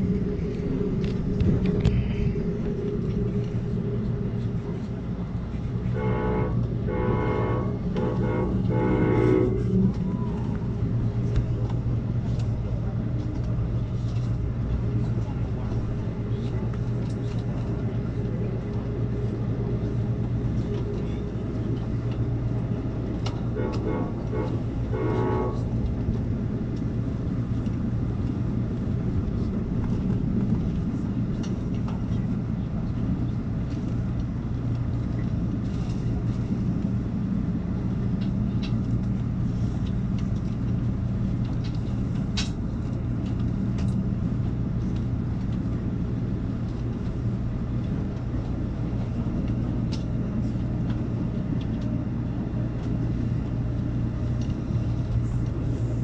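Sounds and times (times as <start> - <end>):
low hum inside train: 0.0 - 56.0
wheels rumbling on rails: 0.0 - 56.0.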